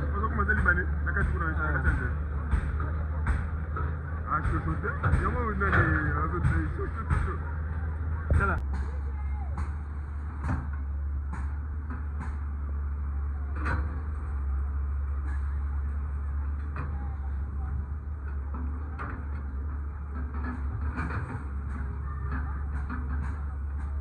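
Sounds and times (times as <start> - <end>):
heavy machine engine running: 0.0 - 24.0.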